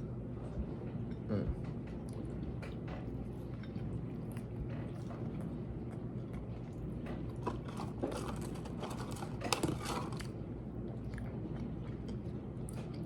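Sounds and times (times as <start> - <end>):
person chewing crunchy food: 3.1 - 13.0.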